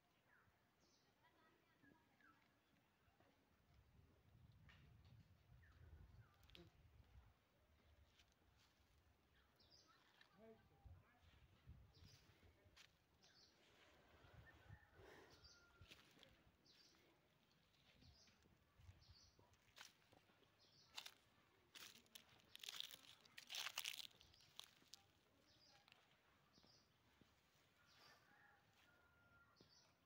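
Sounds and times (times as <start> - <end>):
footsteps crunching on dry straw: 15.8 - 17.0, 19.6 - 26.2.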